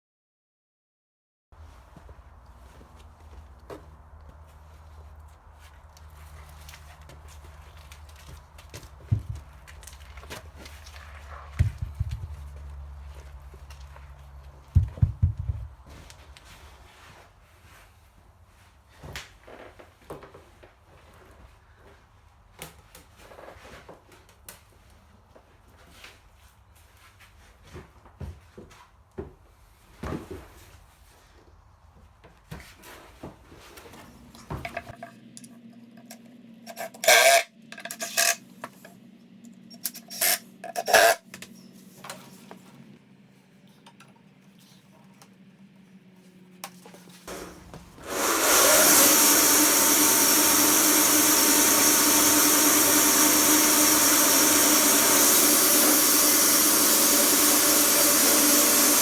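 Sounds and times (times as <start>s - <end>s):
wood and tools clattering: 33.7s - 39.0s, 39.7s - 42.7s, 46.6s - 59.0s
sawmill motor running: 47.3s - 59.0s.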